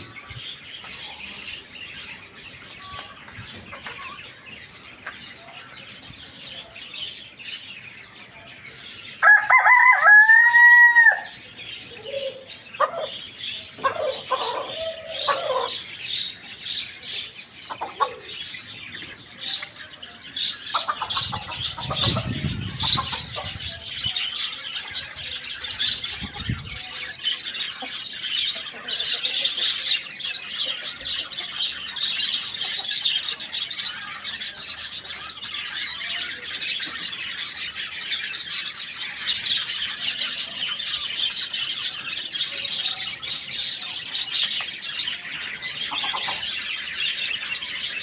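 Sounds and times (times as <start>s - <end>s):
small birds chirping: 0.0s - 48.0s
chicken clucking: 2.6s - 5.1s, 12.0s - 15.9s, 17.0s - 37.2s, 42.4s - 47.9s
rooster crowing: 9.2s - 11.3s.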